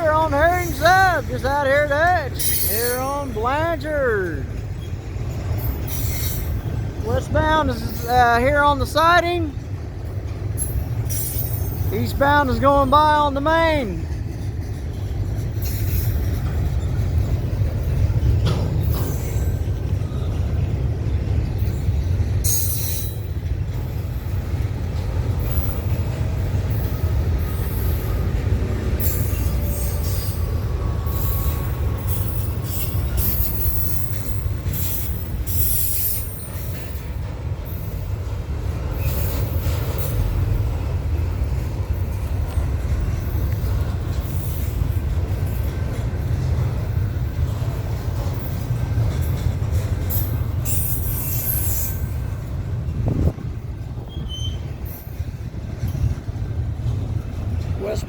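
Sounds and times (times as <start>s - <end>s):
train cars clanking: 0.0s - 58.0s
train wheels rumbling on rail: 0.0s - 58.0s
faint wheel squeal: 50.1s - 52.1s, 54.0s - 55.2s.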